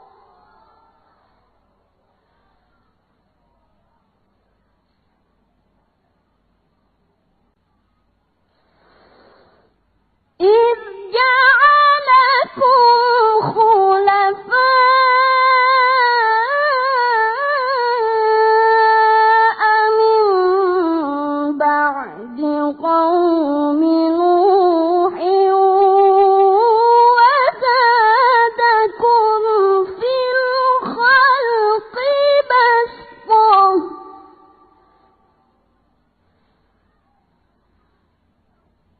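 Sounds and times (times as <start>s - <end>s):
boy reciting melodically: 10.5s - 34.2s.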